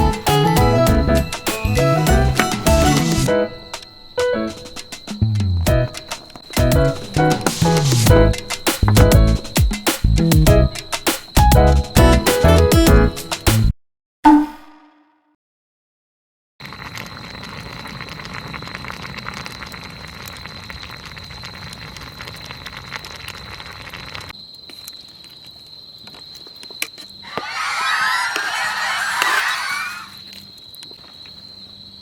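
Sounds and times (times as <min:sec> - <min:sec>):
geese honking: 0:27.3 - 0:30.2.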